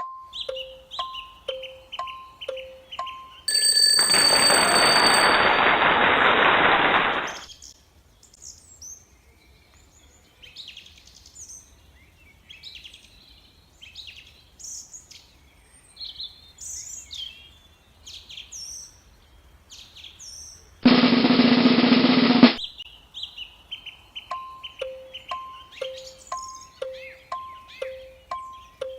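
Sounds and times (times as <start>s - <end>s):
small bird singing: 0.0s - 3.5s, 7.5s - 20.8s, 22.6s - 28.9s.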